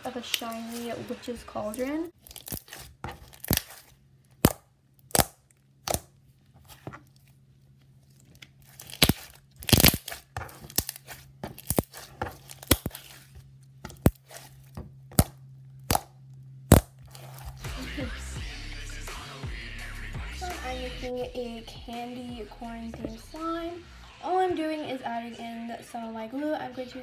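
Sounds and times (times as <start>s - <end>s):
slime squished by hand: 2.2s - 7.3s, 8.4s - 16.1s
sharp clicks and pops: 8.4s - 11.0s, 15.1s - 17.6s.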